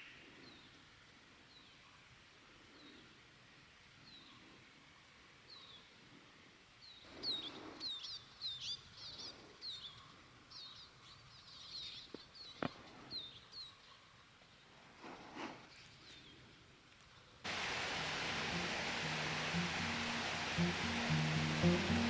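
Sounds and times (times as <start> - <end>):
small songbirds chirping: 6.8 - 14.0, 17.5 - 22.0.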